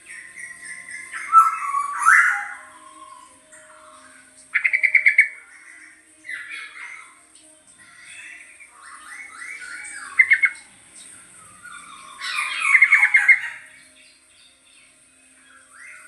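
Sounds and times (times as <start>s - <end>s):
fast rattling bird trill: 0.0s - 2.7s, 8.9s - 13.8s
bird whistled and scratchy calls: 0.6s - 2.7s, 11.7s - 13.7s.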